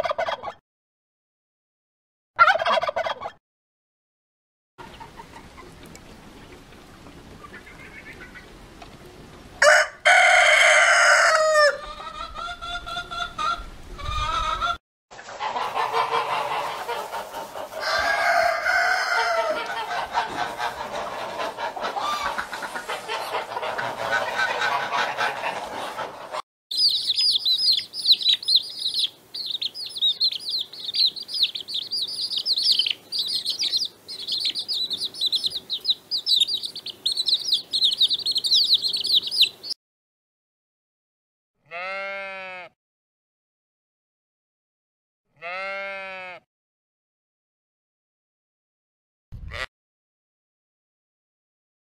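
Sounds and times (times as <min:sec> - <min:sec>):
hens clucking: 0:00.0 - 0:00.6, 0:02.4 - 0:03.4, 0:04.8 - 0:06.8, 0:07.4 - 0:08.6, 0:10.9 - 0:39.8
rooster crowing: 0:09.6 - 0:12.1, 0:17.7 - 0:19.9
chicks peeping: 0:15.5 - 0:39.8.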